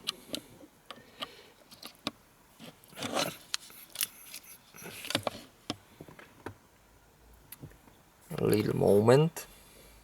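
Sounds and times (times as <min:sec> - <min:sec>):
rustling scrapes: 0:02.6 - 0:05.6.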